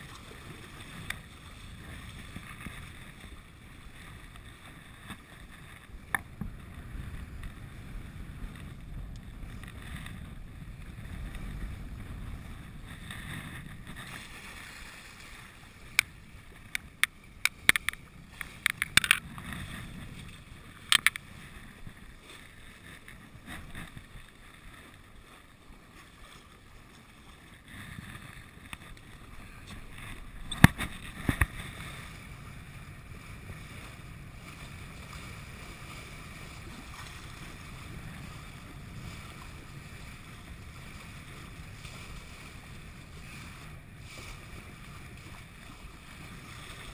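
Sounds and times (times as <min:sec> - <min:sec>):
wind on microphone: 0:00.0 - 0:25.0, 0:26.0 - 0:46.9
water along hull: 0:00.0 - 0:46.9
sharp clicks and knocks: 0:15.9 - 0:19.2, 0:20.9 - 0:21.2, 0:30.4 - 0:31.5.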